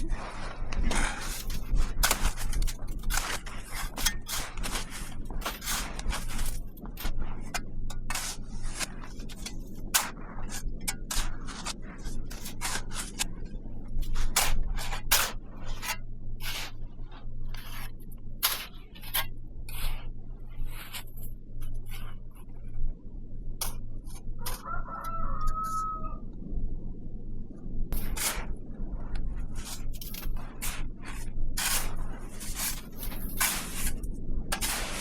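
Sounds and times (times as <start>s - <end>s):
short scraping sounds: 0.0s - 7.2s, 14.0s - 16.8s, 28.0s - 28.6s, 29.6s - 35.0s
steady low hum: 0.0s - 35.0s.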